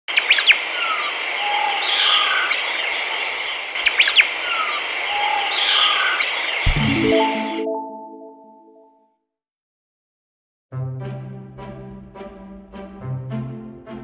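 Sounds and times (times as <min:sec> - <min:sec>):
bird chirps: 0:03.8 - 0:07.6.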